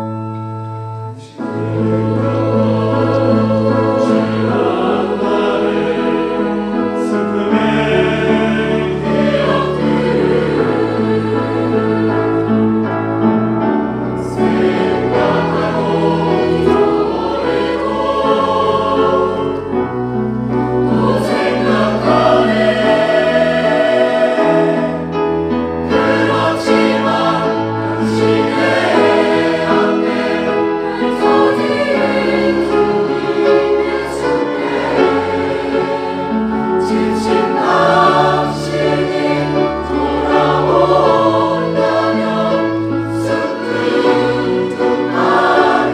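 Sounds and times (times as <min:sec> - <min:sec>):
church choir singing: 0:00.0 - 0:45.9.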